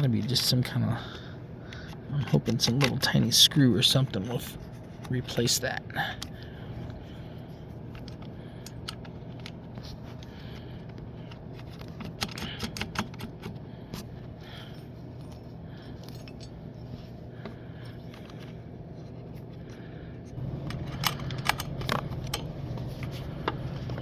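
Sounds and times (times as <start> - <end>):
metal tools clinking: 16.0 - 16.6.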